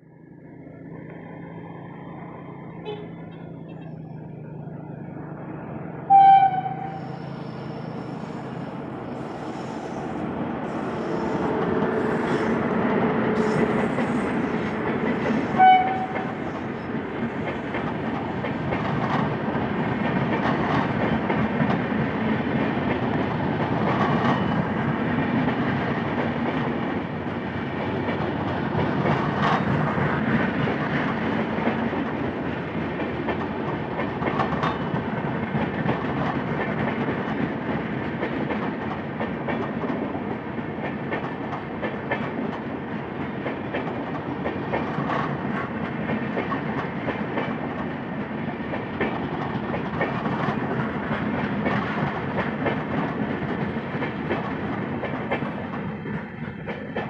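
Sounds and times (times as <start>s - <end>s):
locomotive horn blasts: 6.1s - 7.2s, 15.6s - 16.4s
train wheels clattering: 6.6s - 57.0s.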